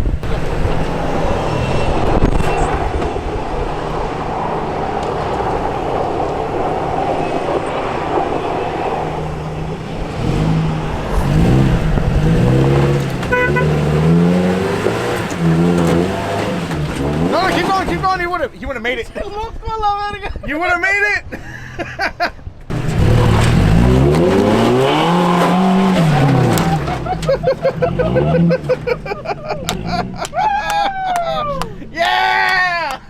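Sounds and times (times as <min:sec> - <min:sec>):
off-road vehicle engine revving: 0:00.0 - 0:18.4, 0:22.7 - 0:30.4.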